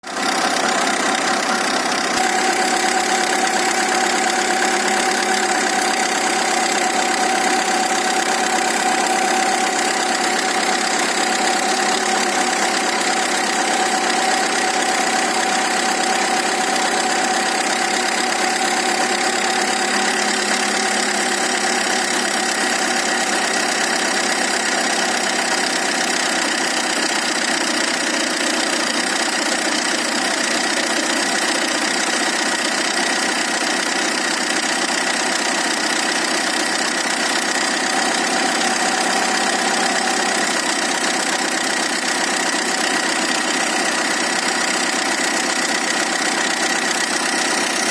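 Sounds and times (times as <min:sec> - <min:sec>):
car engine idling: 0:00.0 - 0:47.9.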